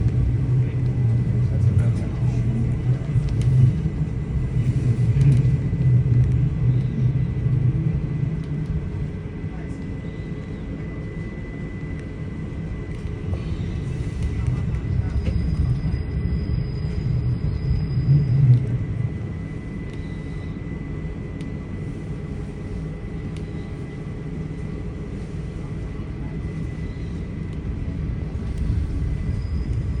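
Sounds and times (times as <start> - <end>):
high whine: 0.0 - 30.0
train rumbling: 0.0 - 30.0
thin high whine: 13.4 - 20.9.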